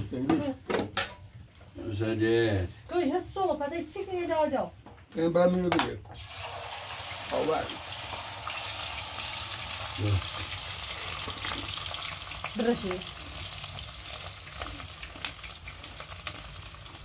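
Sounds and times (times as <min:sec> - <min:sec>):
food sizzling in hot oil: 0:06.2 - 0:17.0.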